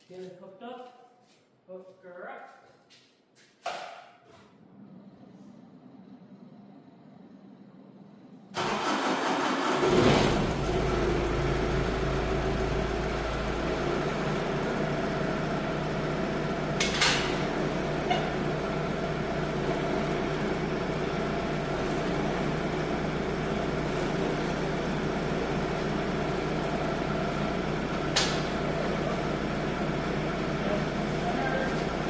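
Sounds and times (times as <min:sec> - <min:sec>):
tractor engine running: 0:08.6 - 0:32.0.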